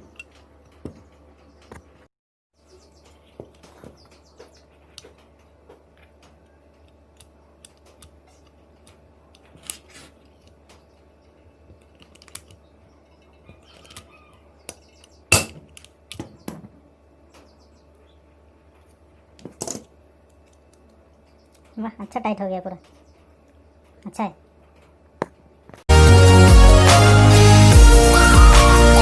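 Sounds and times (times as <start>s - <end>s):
rivet mandrel snapping: 15.3s - 15.9s.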